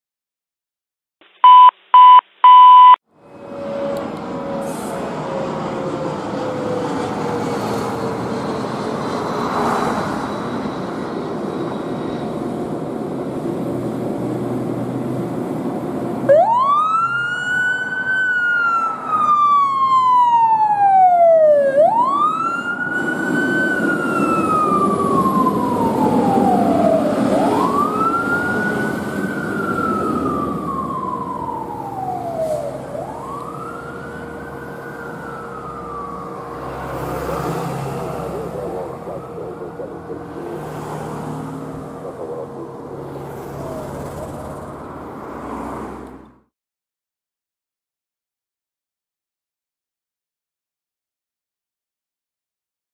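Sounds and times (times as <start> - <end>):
short loud beeps: 1.4 - 3.0
traffic noise: 2.8 - 46.5
fire truck engine: 3.1 - 46.5
fire truck siren wailing: 3.2 - 13.6, 15.5 - 45.6.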